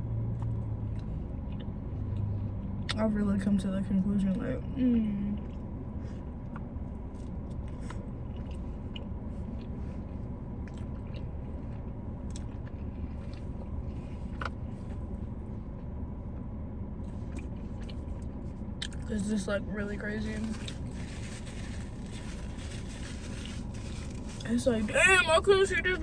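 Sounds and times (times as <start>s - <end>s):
steady low hum: 0.0s - 26.0s
chewing and biting food: 0.4s - 3.0s, 6.4s - 15.0s, 17.0s - 19.1s.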